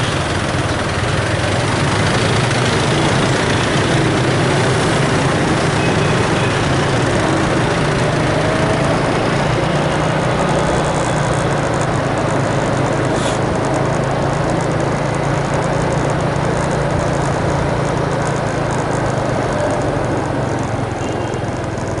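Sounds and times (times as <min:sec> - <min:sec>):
engine droning: 0:00.0 - 0:22.0
broad noisy hiss: 0:12.4 - 0:13.6.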